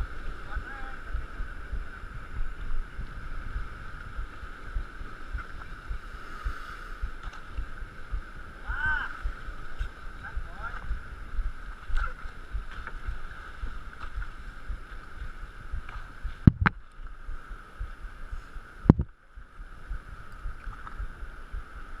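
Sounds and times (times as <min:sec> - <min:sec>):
choppy water: 0:00.0 - 0:22.0
wind: 0:00.0 - 0:22.0.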